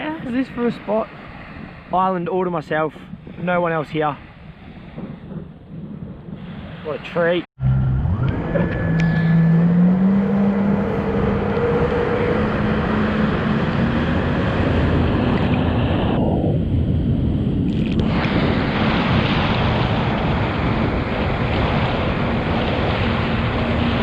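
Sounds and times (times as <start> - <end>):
rush of water and wind: 0.0 - 7.5, 8.2 - 24.0
jet ski engine: 7.6 - 24.0.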